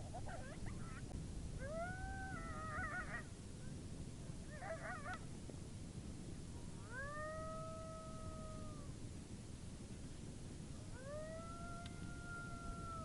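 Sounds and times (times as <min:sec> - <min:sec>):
coyote howling and yipping: 0:00.0 - 0:03.3, 0:04.5 - 0:05.2, 0:06.8 - 0:09.0, 0:10.9 - 0:13.0
low background noise: 0:00.0 - 0:13.0.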